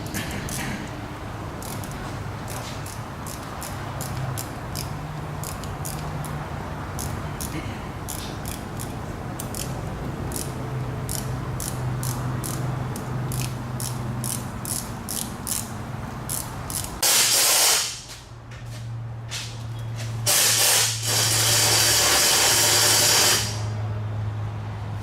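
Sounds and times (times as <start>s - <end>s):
ratchet wrench clicking: 1.6s - 18.0s
loud hiss of air: 17.0s - 18.1s, 20.3s - 23.8s.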